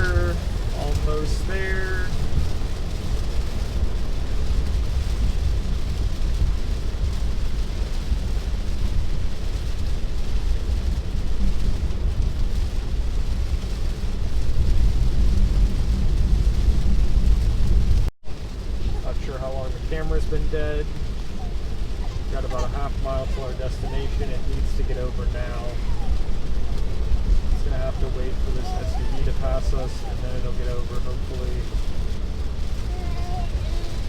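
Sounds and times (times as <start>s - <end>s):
rain on a moving car: 0.0s - 34.0s
tyre noise on wet road: 0.0s - 34.0s.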